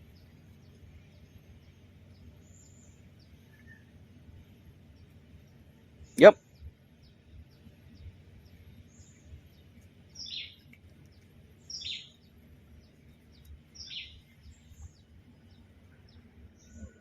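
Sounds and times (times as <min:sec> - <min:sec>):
high bird chirps: 0:10.2 - 0:10.7, 0:11.6 - 0:12.2, 0:13.3 - 0:15.1.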